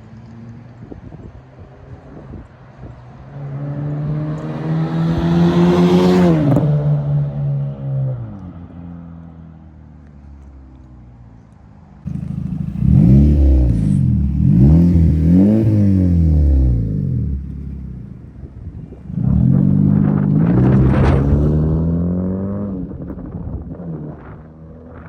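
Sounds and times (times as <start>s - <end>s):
exhaust crackles and pops: 12.1s - 15.6s, 17.4s - 21.9s
car engine revving: 12.1s - 23.2s.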